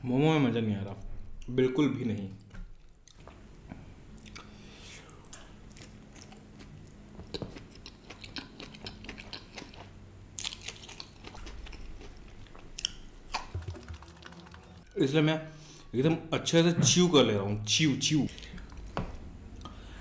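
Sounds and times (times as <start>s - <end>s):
chewing with wet mouth clicks: 4.1s - 14.6s.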